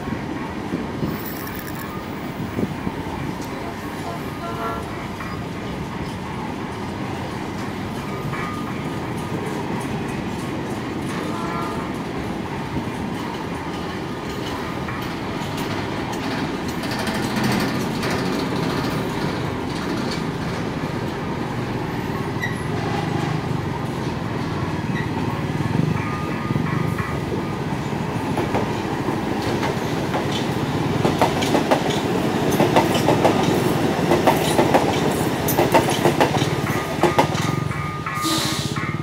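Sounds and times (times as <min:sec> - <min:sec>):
freight train wheels rumbling on rails: 0:00.0 - 0:39.0.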